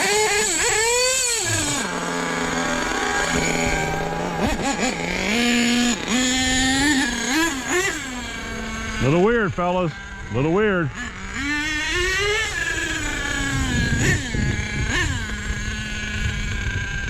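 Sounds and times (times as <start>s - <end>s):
small engine idling and revving: 0.0s - 17.0s.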